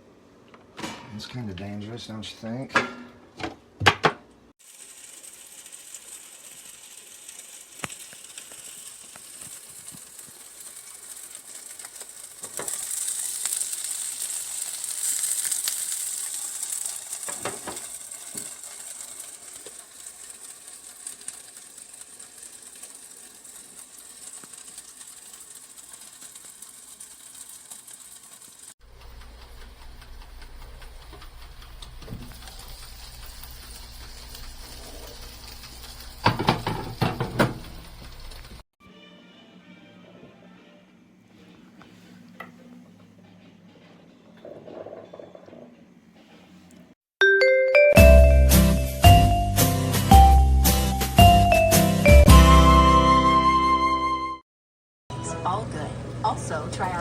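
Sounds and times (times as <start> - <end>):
appliance hissing and sizzling: 4.6 - 38.6.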